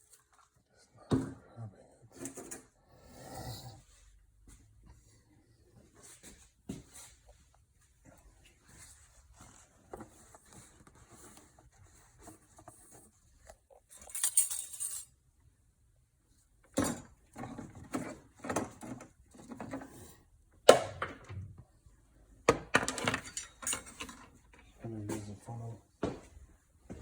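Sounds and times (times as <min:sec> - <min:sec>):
knocks and clinks of objects: 0:13.9 - 0:15.1, 0:22.5 - 0:24.4.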